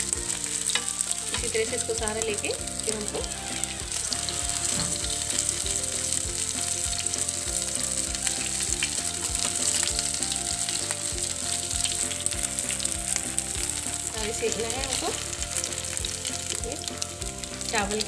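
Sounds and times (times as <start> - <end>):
cutlets sizzling in a pan: 0.0 - 18.0
spatula tapping and scraping: 0.6 - 1.5.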